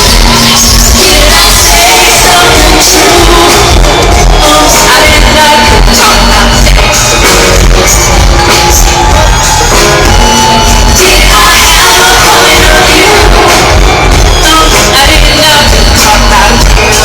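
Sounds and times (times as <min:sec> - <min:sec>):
woman singing: 0:00.0 - 0:07.2, 0:10.9 - 0:17.0
live pop concert music: 0:00.0 - 0:17.0.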